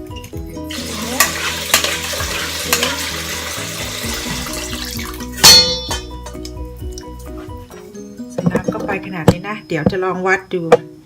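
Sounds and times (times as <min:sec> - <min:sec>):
background music: 0:00.0 - 0:11.0
wet food stirred in pot: 0:00.6 - 0:05.5.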